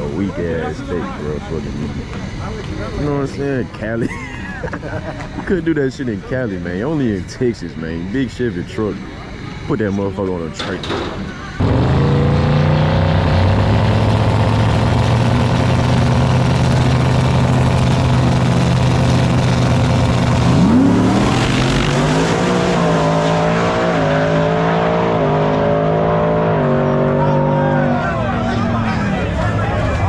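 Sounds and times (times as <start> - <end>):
vehicle engine running: 0.0 - 7.2, 11.2 - 30.0.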